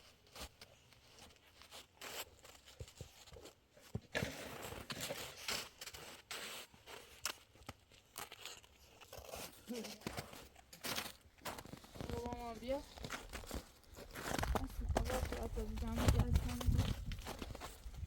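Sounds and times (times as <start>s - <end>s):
crunching and scraping: 0.3s - 18.0s.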